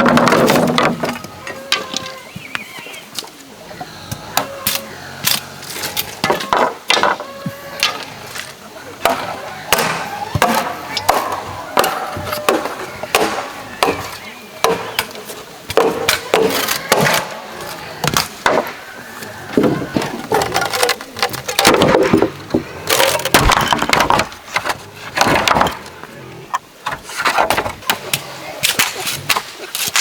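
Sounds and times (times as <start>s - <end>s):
bamboo chopping knocks and cracks: 9.0s - 17.3s.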